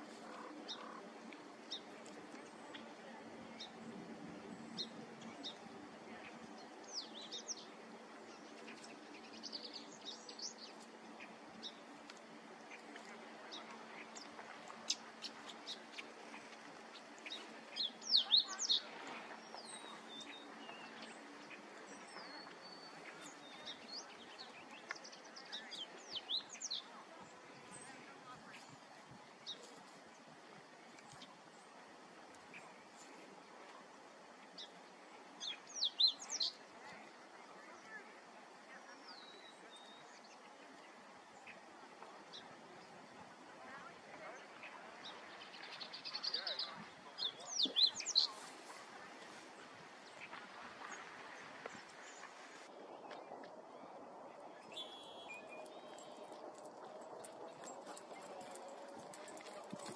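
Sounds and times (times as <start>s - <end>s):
small birds chirping: 4.7s - 28.7s, 43.7s - 49.1s
whistled bird notes: 54.6s - 56.2s.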